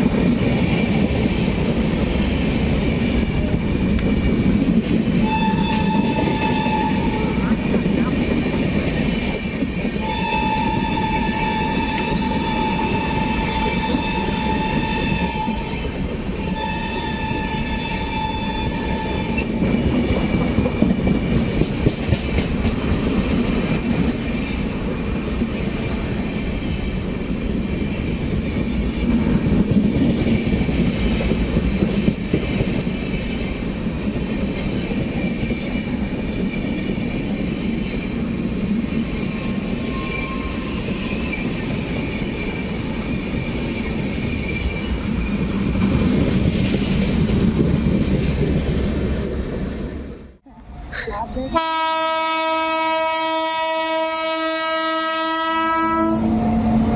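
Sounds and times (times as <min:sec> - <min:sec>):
passing train rumble: 0:00.0 - 0:56.9
train horn blasts: 0:05.2 - 0:07.6, 0:10.0 - 0:19.6, 0:51.6 - 0:56.9.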